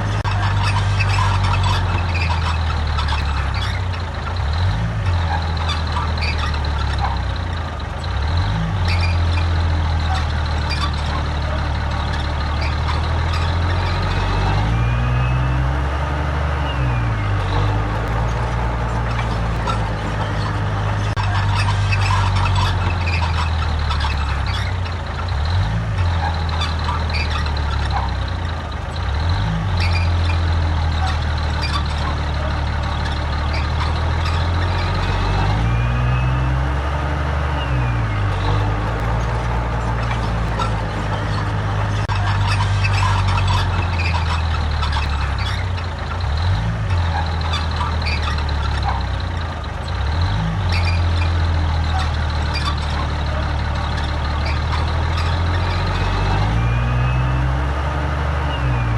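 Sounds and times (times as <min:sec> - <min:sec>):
clanks and squeaks: 0:00.0 - 0:58.9
heavy diesel machinery engine: 0:00.0 - 0:58.9.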